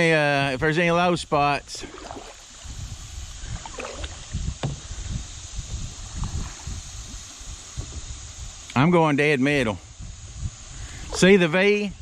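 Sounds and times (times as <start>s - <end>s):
wind buffeting microphone: 0.0s - 12.0s
river water rushing: 1.8s - 2.7s.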